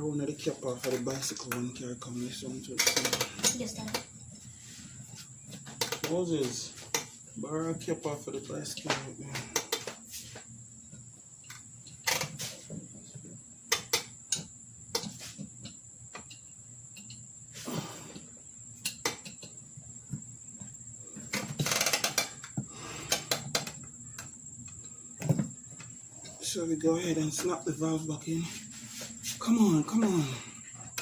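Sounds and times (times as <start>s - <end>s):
crickets chirring: 0.0s - 31.0s
clicks and knocks of hand work: 5.5s - 7.2s, 8.7s - 10.0s, 13.7s - 17.2s, 18.8s - 19.6s.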